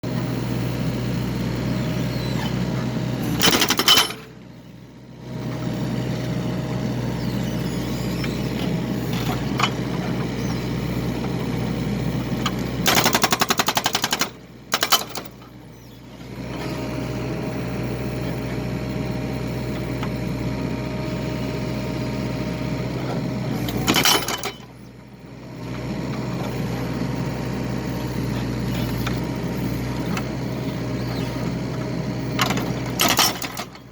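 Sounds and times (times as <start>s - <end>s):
excavator engine running: 0.0s - 33.9s.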